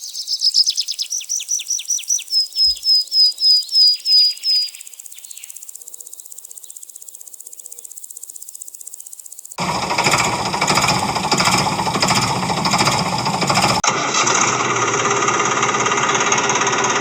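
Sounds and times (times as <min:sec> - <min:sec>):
bird singing high notes: 0:00.0 - 0:05.6
insect chirring: 0:00.0 - 0:12.3.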